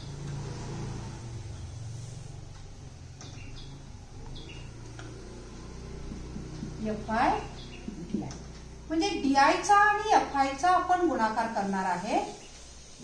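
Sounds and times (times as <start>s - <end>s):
small bird chirping: 2.6s - 8.9s.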